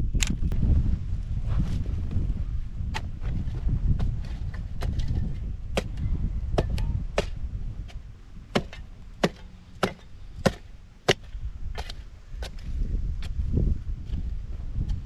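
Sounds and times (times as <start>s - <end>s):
sharp chopping strikes: 6.6s - 12.6s.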